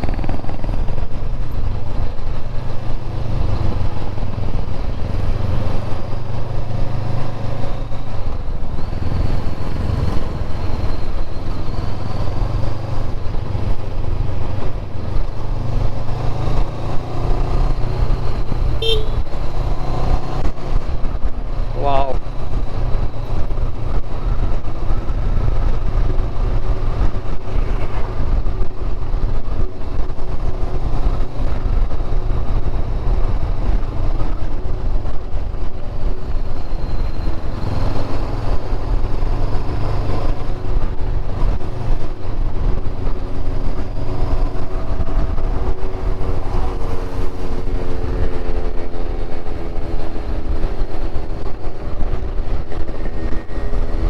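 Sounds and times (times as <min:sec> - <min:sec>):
motorcycle engine running: 0:00.0 - 0:22.0
wind buffeting microphone: 0:00.0 - 0:54.0.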